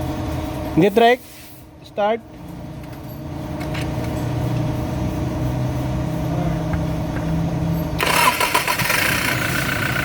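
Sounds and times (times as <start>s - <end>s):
diesel engine starting and running: 2.4s - 10.0s.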